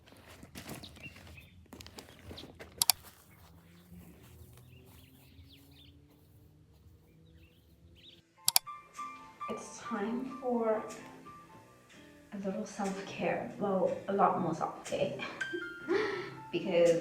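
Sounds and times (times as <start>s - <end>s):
footsteps: 0.0s - 10.1s
sharp clicks: 2.8s - 3.0s, 8.4s - 9.1s.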